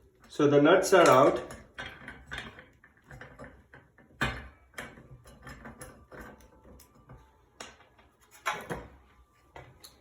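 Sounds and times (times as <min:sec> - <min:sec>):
metal parts knocking and clicking: 0:01.0 - 0:07.2.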